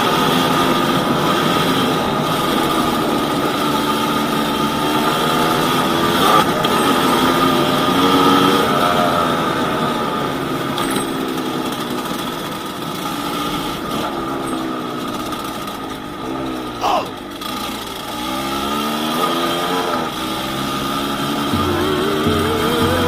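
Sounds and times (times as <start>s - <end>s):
dirt bike engine revving: 17.1s - 23.0s.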